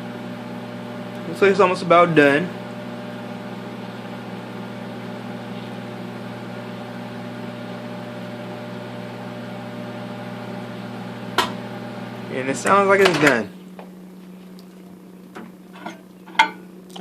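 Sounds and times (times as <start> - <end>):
microwave oven humming: 0.0 - 17.0.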